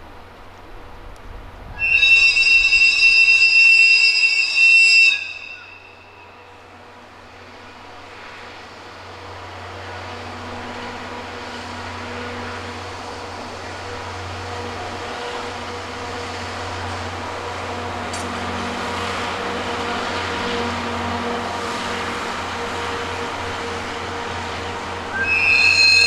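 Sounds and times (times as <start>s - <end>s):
train running noise: 0.0s - 26.0s
train horn blast: 1.8s - 6.8s, 9.9s - 13.1s, 13.8s - 26.0s.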